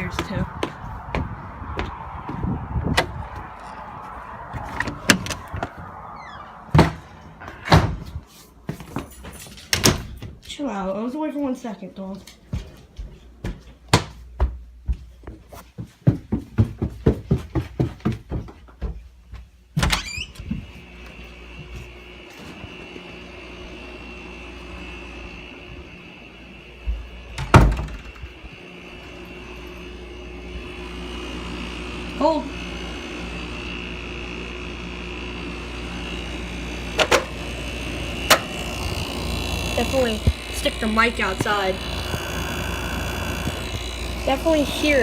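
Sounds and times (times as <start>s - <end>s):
footsteps thumping: 0.1s - 3.4s, 6.7s - 10.4s, 12.4s - 19.6s
door squeaking open: 6.1s - 8.0s, 19.8s - 20.4s
air conditioner humming: 22.8s - 45.0s.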